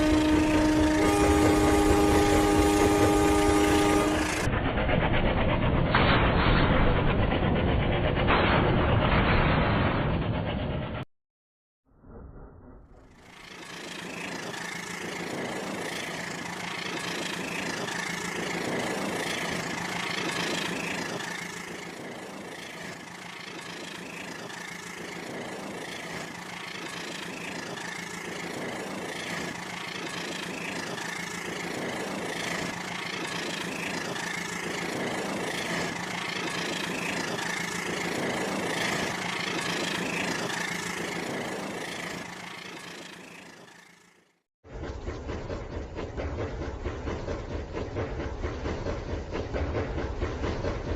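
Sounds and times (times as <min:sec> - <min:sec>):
toy train motor hum: 0:00.0 - 0:04.5, 0:13.2 - 0:44.3.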